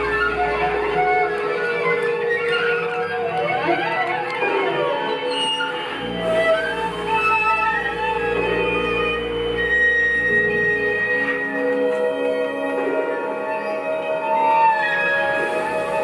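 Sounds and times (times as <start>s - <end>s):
small ensemble instrumental music: 0.0s - 16.0s
low drone: 5.8s - 13.8s.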